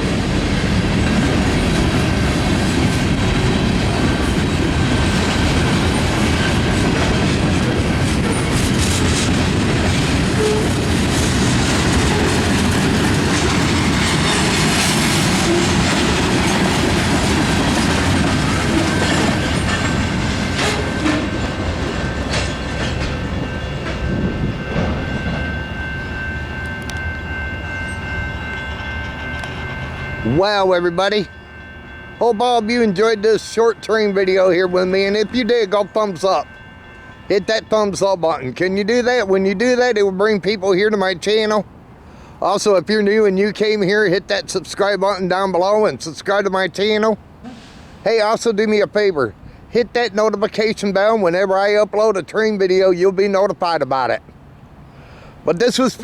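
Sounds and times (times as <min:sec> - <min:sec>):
wheels clacking over rail joints: 0:00.0 - 0:31.2
freight train rumble: 0:00.0 - 0:56.0.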